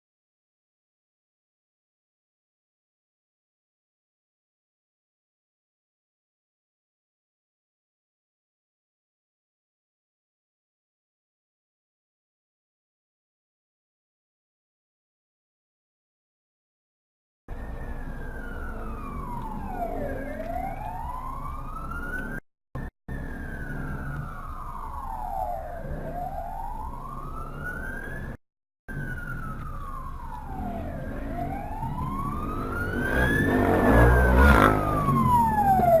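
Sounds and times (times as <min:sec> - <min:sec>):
approaching vehicle rumble: 0:17.5 - 0:36.0
emergency siren wailing: 0:17.5 - 0:36.0.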